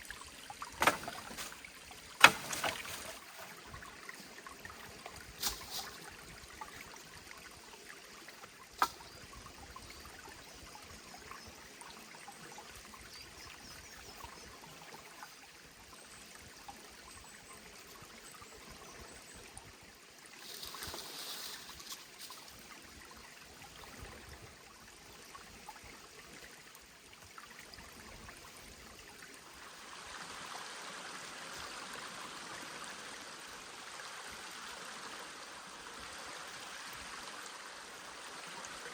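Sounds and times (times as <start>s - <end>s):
faint forest stream: 0.0s - 38.9s
brief rustle: 5.4s - 6.0s, 20.4s - 22.5s.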